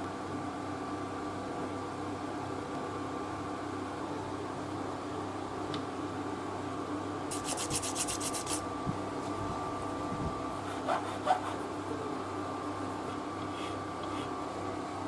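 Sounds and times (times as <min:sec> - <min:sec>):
steady background hum: 0:00.0 - 0:15.0
hissy scraping strokes: 0:07.3 - 0:08.6.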